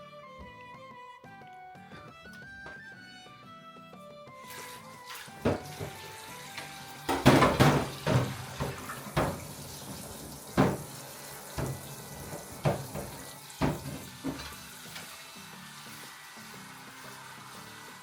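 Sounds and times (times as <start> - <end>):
water running from tap: 4.4 - 18.0
sharp knocks in sink: 5.4 - 6.0, 7.1 - 11.0, 11.6 - 14.6.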